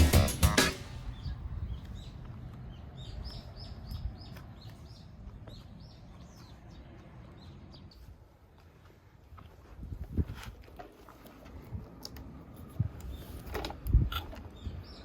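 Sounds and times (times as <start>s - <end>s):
small birds chirping: 0.8s - 8.8s, 13.0s - 15.0s.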